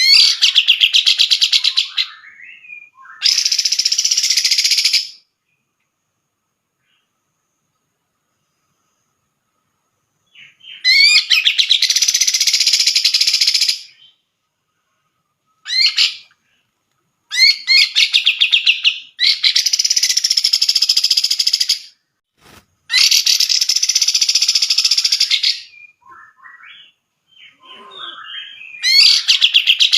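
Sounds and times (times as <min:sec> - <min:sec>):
bird chattering song: 0:00.0 - 0:05.2, 0:10.3 - 0:14.2, 0:17.3 - 0:21.9, 0:22.9 - 0:29.9.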